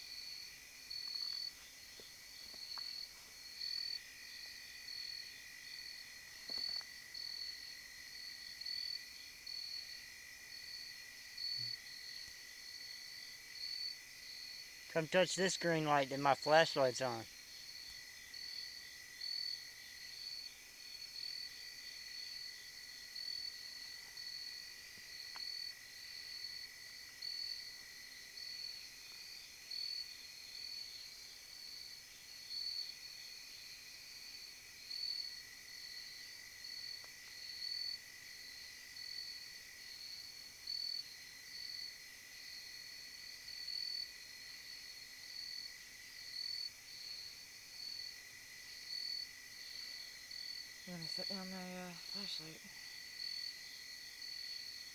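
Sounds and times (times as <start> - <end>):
insects chirping: 0.0 - 54.9.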